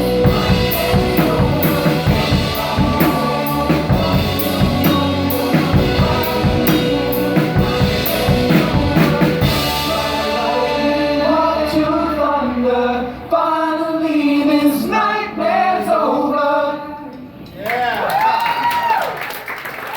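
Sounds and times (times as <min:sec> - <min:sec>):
drum kit: 0:00.0 - 0:11.7
chords: 0:00.0 - 0:13.3
bass: 0:00.0 - 0:14.9
person singing: 0:00.0 - 0:16.6.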